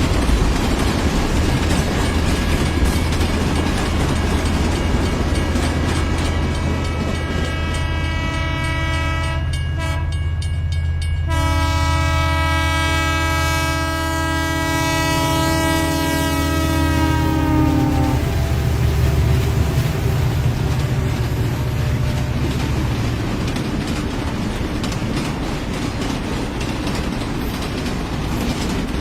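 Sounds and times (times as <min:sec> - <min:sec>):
train horn chords: 0:06.8 - 0:10.3, 0:11.2 - 0:22.9.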